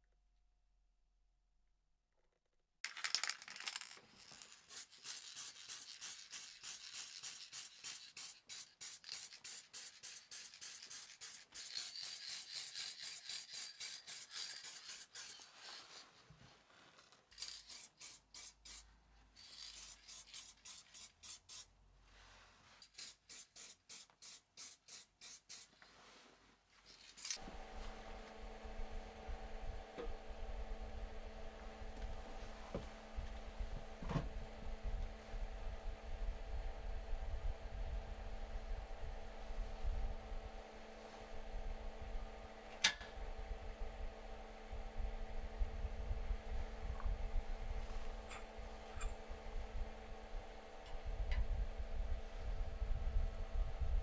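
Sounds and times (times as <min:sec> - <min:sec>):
rapid scraping strokes: 0:04.7 - 0:16.2
steady motor hum: 0:27.4 - 0:54.0.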